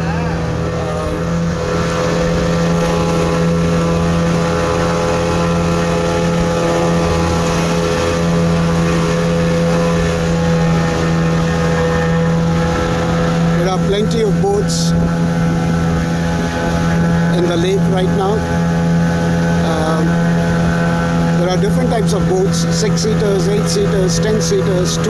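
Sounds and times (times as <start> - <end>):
motor boat engine droning: 0.0 - 25.0.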